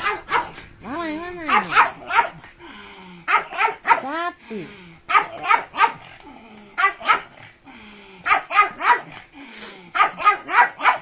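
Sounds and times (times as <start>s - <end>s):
dog barking sharply: 0.0s - 0.6s, 1.5s - 2.4s, 3.3s - 4.1s, 5.1s - 6.0s, 6.8s - 7.3s, 10.0s - 11.0s.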